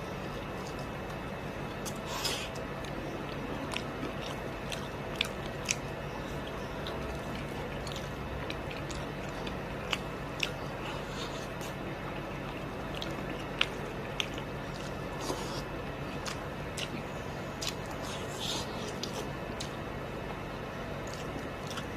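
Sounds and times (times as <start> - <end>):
wet chewing: 0.2 - 21.9.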